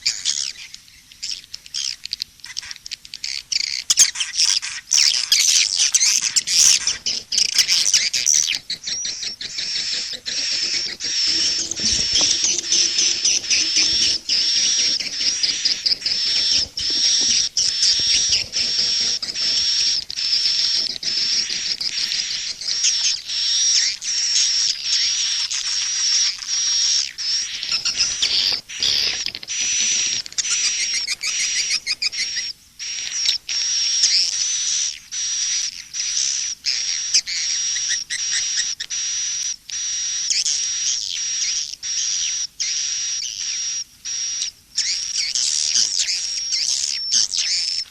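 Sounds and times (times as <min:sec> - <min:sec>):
high-pitched bird twittering: 0:00.0 - 0:38.9, 0:39.7 - 0:47.9.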